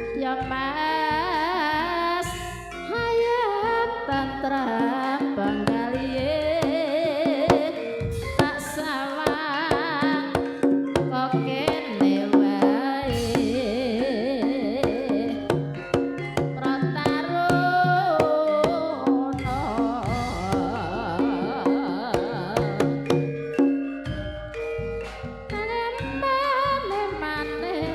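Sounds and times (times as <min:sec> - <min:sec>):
person singing with vibrato: 0:00.0 - 0:23.8, 0:25.5 - 0:27.9
hand drums: 0:02.2 - 0:27.9.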